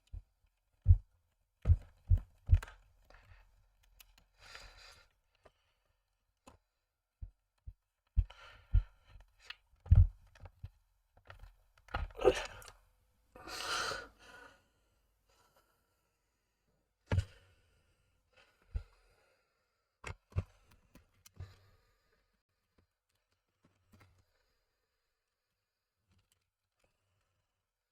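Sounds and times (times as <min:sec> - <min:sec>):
clicks and knocks of small parts: 0:26.0 - 0:27.4.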